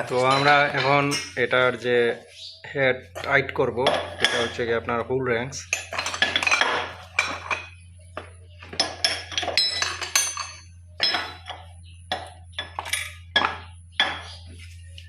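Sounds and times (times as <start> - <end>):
metal wrench clinking on engine: 5.6 - 7.8, 8.8 - 14.4.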